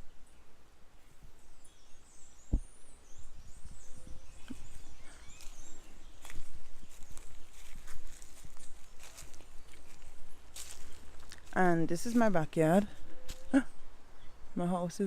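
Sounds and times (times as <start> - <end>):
faint bird chirps: 0.0 - 11.0
sharp thump: 2.5 - 2.7.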